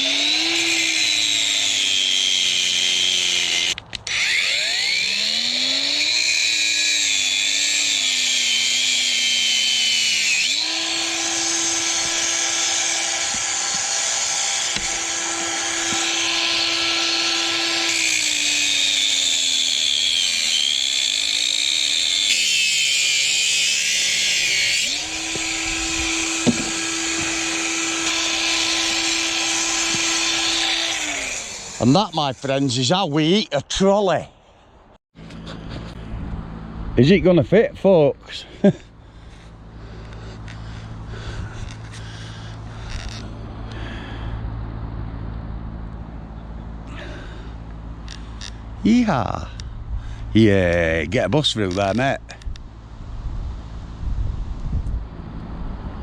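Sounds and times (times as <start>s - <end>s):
power tool motor: 0.0s - 32.6s, 39.2s - 43.9s.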